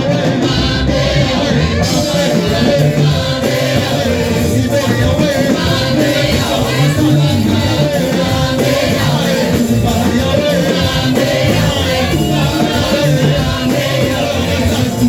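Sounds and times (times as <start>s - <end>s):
live worship band with singing: 0.0s - 15.0s.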